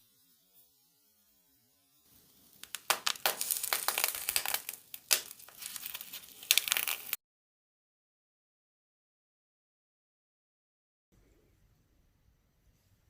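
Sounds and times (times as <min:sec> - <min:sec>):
slime crackling and popping: 0:02.6 - 0:07.2.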